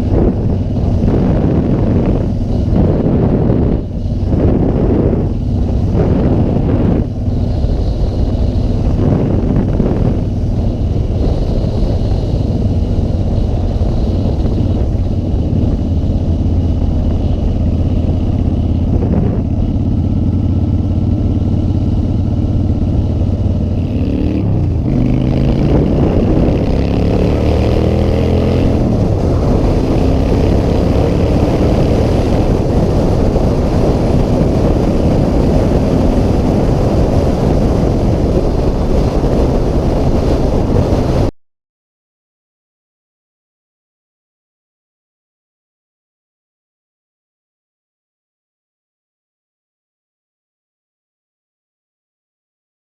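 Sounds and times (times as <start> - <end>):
motorcycle engine revving: 0.0 - 41.3.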